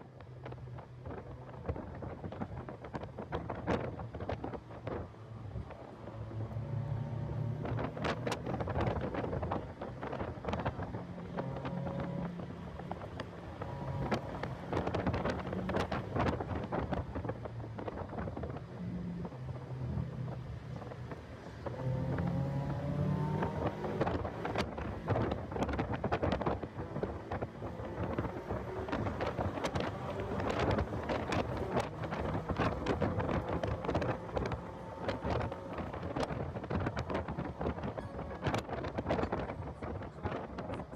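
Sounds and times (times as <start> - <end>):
wind buffeting microphone: 0.0 - 40.9
car engine running: 19.2 - 40.8.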